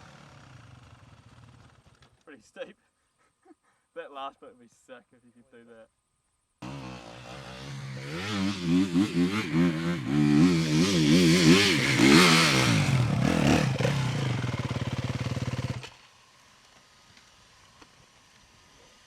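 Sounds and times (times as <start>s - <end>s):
dirt bike engine revving: 6.6s - 16.0s.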